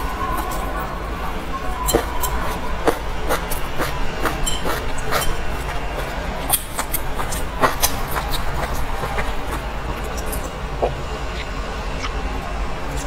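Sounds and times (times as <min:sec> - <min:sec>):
person chewing food: 0:00.0 - 0:12.2
steady low hum: 0:00.0 - 0:13.0.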